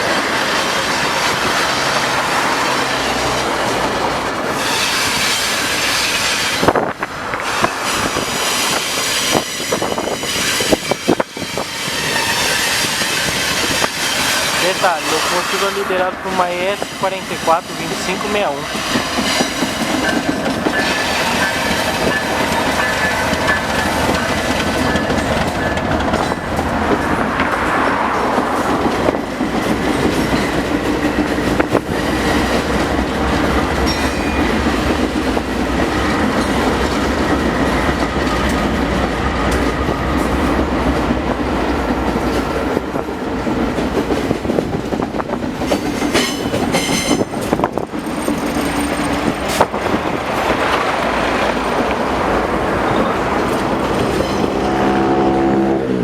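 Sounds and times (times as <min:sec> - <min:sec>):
freight train wagons rolling: 0:00.0 - 0:55.4
wheels clicking over rail joints: 0:18.4 - 0:54.6.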